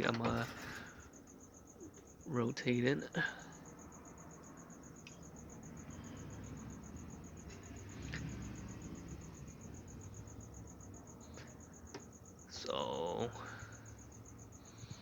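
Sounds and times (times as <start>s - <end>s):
cricket chirping: 0.0s - 15.0s
soft clicks: 5.0s - 5.2s.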